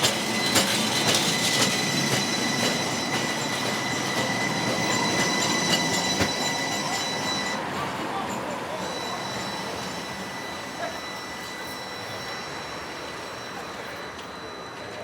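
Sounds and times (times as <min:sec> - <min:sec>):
sharp clacks of wheels: 0:00.0 - 0:07.0
streetcar whine on rails: 0:00.0 - 0:15.0.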